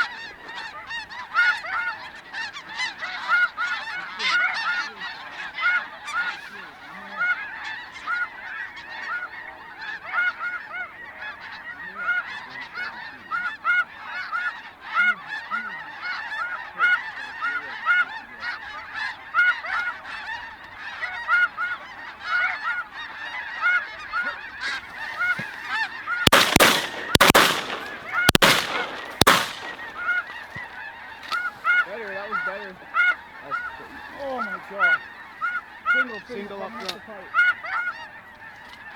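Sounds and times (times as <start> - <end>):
geese honking: 0.0 - 38.9
shotgun shots: 26.3 - 30.3.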